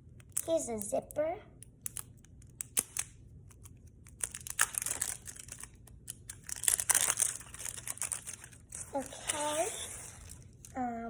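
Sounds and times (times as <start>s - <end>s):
plastic packaging crinkling: 4.1s - 10.8s.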